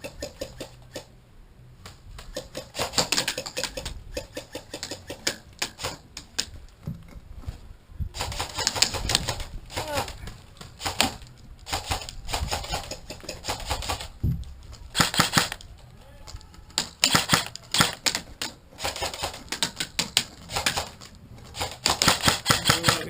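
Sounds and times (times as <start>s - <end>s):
airsoft guns firing bursts: 2.3s - 6.0s, 8.2s - 14.2s, 14.9s - 15.6s, 16.8s - 23.0s.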